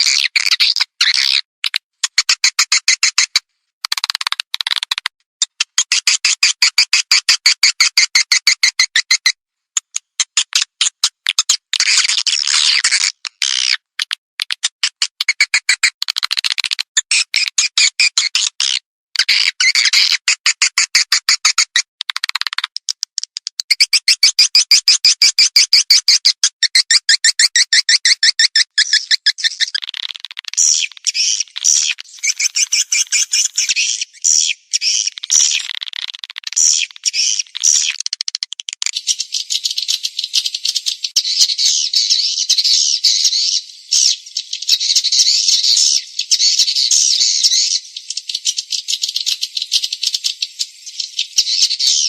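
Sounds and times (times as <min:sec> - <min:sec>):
swiftlet twittering chirps: 0:30.6 - 0:35.8, 0:36.5 - 0:38.0, 0:38.9 - 0:52.0.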